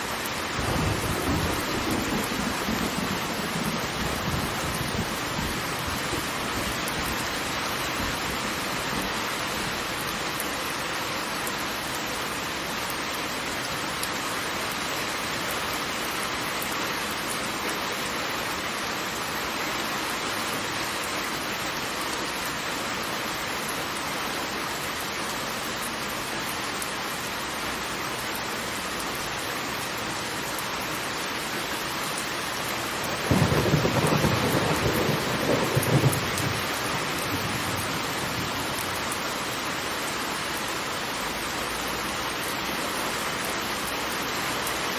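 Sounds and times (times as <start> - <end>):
heavy falling water rushing: 19.9 - 44.6.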